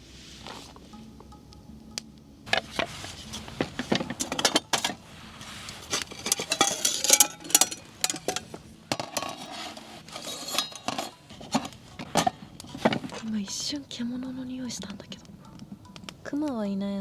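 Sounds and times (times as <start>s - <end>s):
rustling: 0.0s - 1.1s, 2.5s - 14.1s
dishes and utensils clinking: 2.5s - 5.0s, 5.8s - 13.2s.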